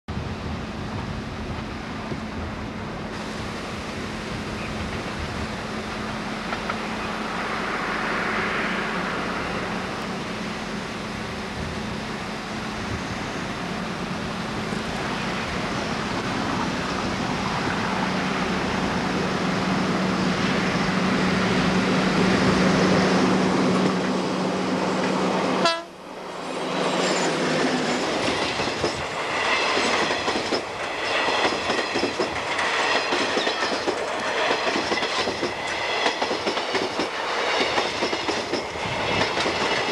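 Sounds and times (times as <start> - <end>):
electric locomotive hum: 0.1 - 39.9
train wheels clacking over rail joints: 6.0 - 6.9, 26.7 - 39.9.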